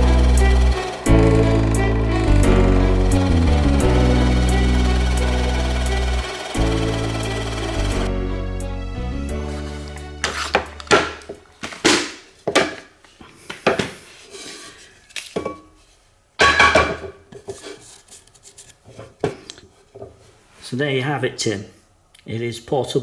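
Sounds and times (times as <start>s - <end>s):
drill motor hum: 0.0s - 8.4s.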